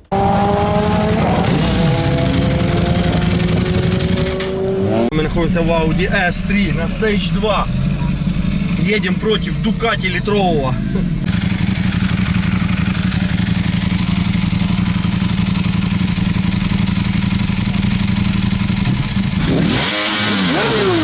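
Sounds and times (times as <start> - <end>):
vehicle engine running and revving: 0.0 - 21.0.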